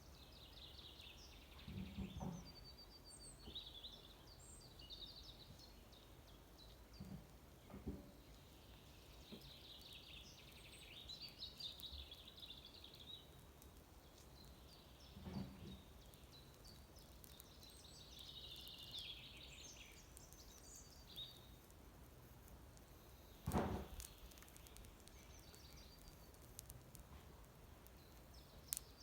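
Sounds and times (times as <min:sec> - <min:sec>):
faint songbird song: 0:00.0 - 0:29.0
loud thump: 0:23.4 - 0:24.1.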